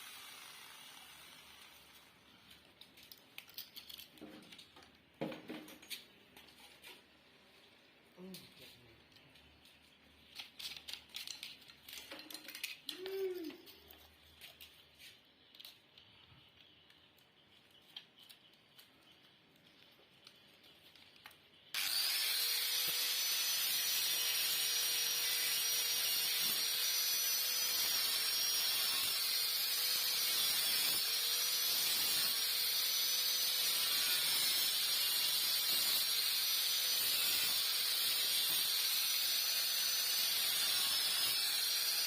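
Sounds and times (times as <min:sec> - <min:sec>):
power tool whining: 0:00.0 - 0:02.3, 0:21.7 - 0:42.0.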